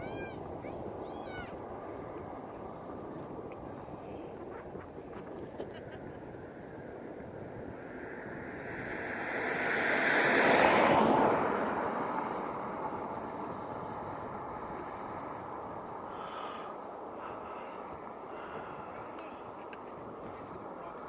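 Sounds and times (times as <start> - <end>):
aircraft passing by: 6.2 - 21.0.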